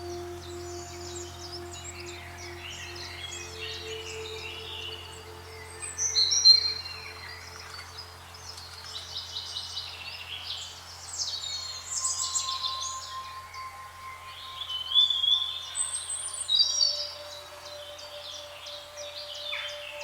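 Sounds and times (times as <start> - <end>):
songbirds chirping and singing: 0.0 - 10.3, 11.2 - 20.0
faint steady tone: 0.0 - 20.0.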